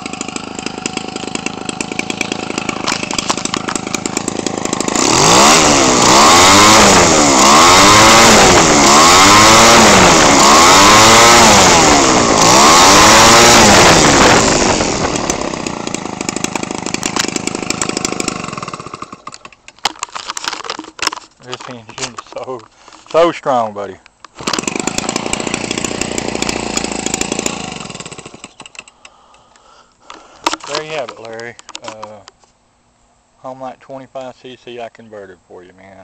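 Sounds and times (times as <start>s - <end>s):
small two-stroke engine revving: 0.0s - 19.3s, 24.4s - 28.8s.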